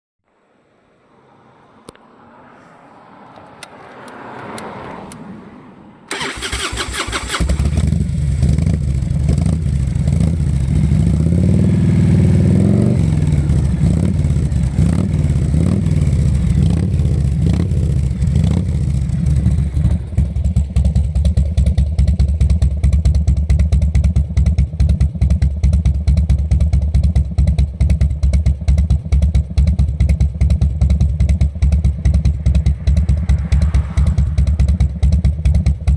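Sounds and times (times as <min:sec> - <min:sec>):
motorcycle engine cranking: 0:06.1 - 0:10.7
motorcycle engine idling: 0:06.1 - 0:35.9.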